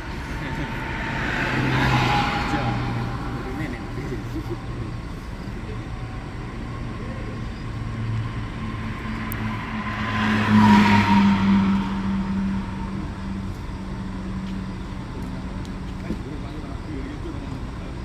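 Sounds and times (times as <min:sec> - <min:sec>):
coach diesel engine running: 0:00.0 - 0:18.0
road noise: 0:00.0 - 0:18.0
vehicle passing: 0:00.0 - 0:18.0.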